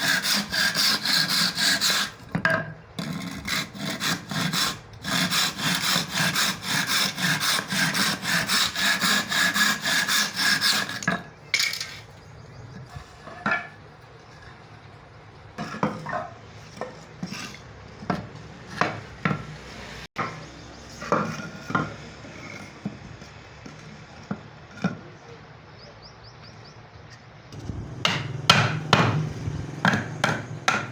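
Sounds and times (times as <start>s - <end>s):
handsaw cutting wood: 0.0s - 2.2s, 3.0s - 11.1s, 27.9s - 30.9s.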